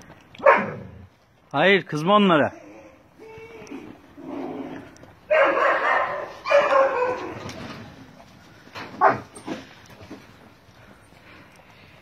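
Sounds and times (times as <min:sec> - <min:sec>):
dog yelping: 0:00.4 - 0:00.9, 0:05.3 - 0:07.5
dogs barking: 0:00.4 - 0:01.0, 0:05.3 - 0:07.4, 0:09.0 - 0:09.4.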